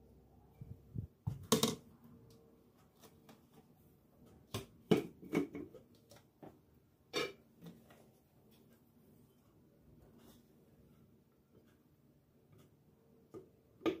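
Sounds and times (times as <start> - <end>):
household objects clicking and knocking: 1.3 - 1.9.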